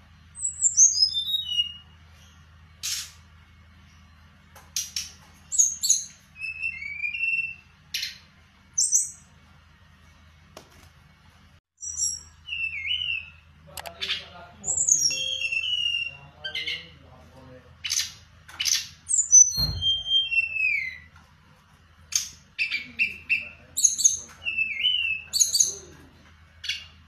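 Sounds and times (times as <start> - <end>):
songbird singing: 0.0 - 9.4, 11.8 - 21.2, 21.8 - 27.0
steady low hum: 0.0 - 19.1.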